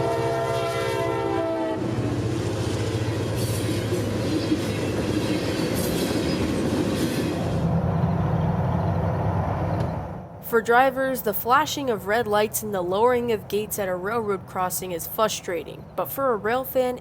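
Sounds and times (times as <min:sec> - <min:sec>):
locomotive horn chord: 0:00.0 - 0:02.1
low locomotive engine drone: 0:00.0 - 0:17.0
wheels rumbling on rails: 0:00.0 - 0:17.0.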